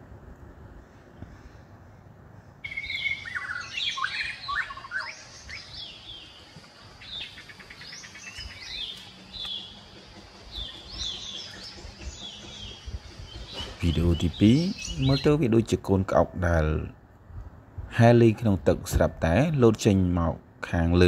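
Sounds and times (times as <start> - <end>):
birds chirping and trilling: 0.8 - 17.0.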